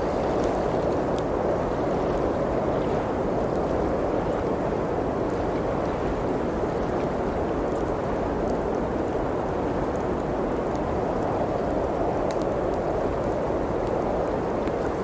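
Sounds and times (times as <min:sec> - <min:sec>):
wood fire crackles: 0:00.0 - 0:02.4, 0:06.2 - 0:15.0.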